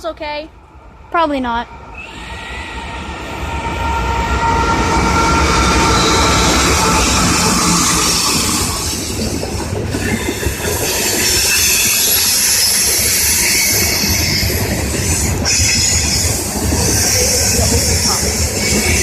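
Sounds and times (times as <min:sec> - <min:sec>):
train wheels rumbling on rail: 0:00.0 - 0:19.0
high-pitched wheel squeal: 0:02.0 - 0:09.2.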